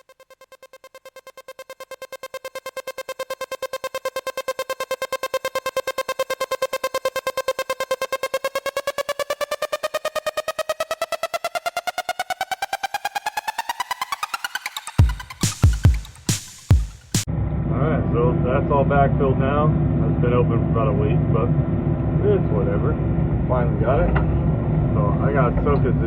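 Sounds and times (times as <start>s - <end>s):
pulsing synthesizer note: 17.2s - 26.0s.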